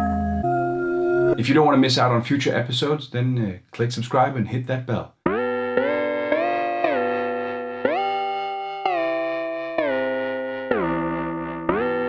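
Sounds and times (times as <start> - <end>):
synthesizer melody: 0.0 - 1.4, 5.2 - 12.0.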